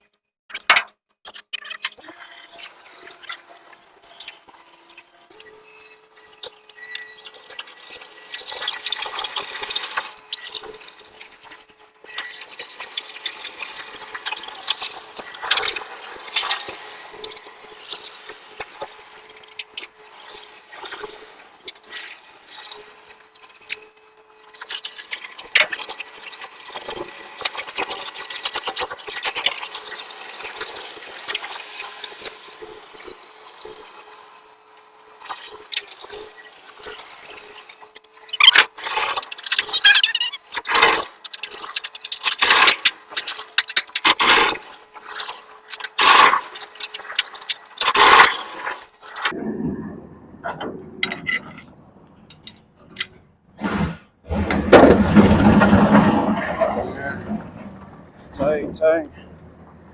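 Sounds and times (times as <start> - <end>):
metal hooks clicking and scraping: 18.8 - 19.9, 36.8 - 48.3.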